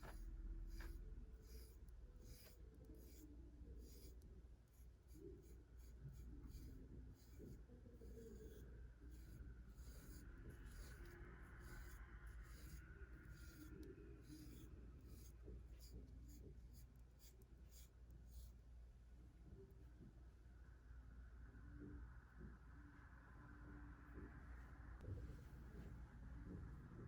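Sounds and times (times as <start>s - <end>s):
brush strokes through fur: 0.0s - 4.2s, 4.8s - 18.4s.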